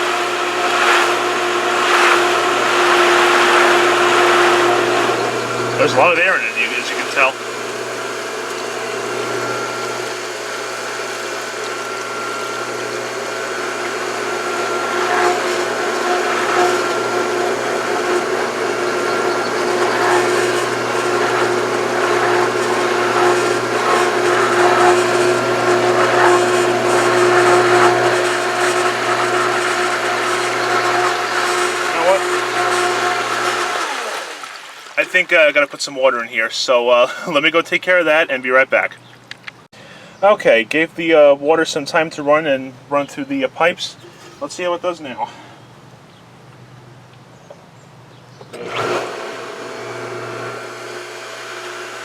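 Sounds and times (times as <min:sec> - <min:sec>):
pump motor whining: 0:00.0 - 0:36.1, 0:48.4 - 0:52.0.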